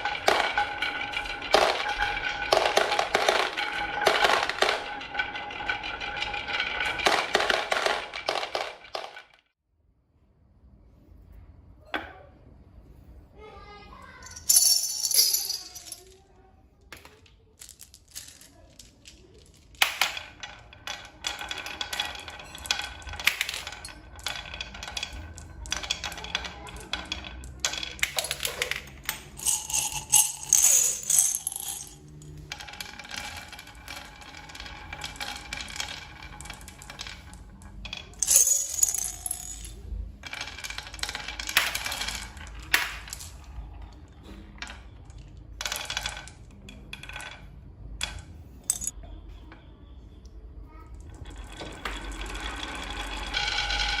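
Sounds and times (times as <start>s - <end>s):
small hard objects clinking: 0.0s - 9.3s, 14.2s - 16.2s, 16.9s - 47.4s, 48.0s - 49.0s.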